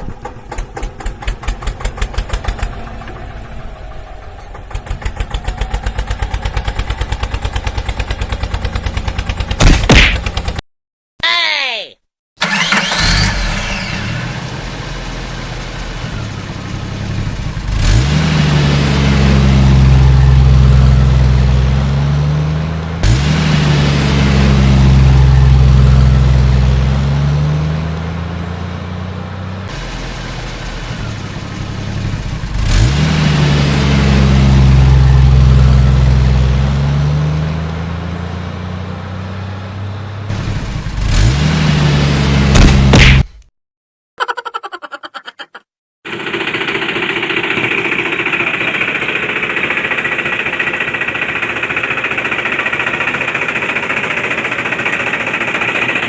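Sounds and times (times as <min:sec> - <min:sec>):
vehicle engine revving: 0:12.4 - 0:43.0.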